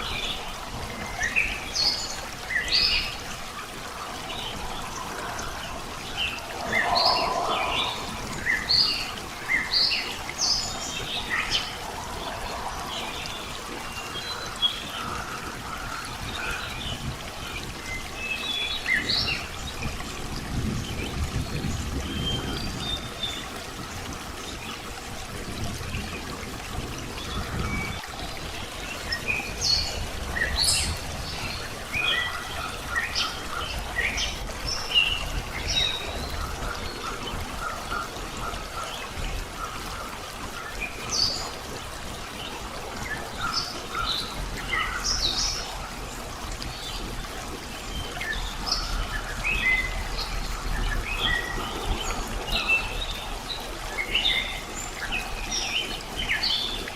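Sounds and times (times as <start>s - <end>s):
birds chirping: 0.0s - 16.9s
running water rushing: 0.0s - 56.9s.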